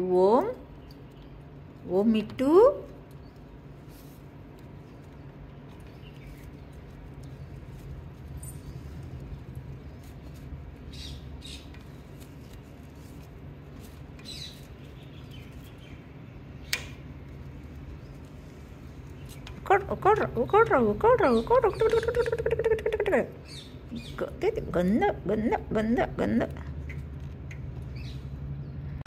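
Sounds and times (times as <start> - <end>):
steady low hum: 0.0 - 29.0
parakeet chirps: 21.2 - 24.2.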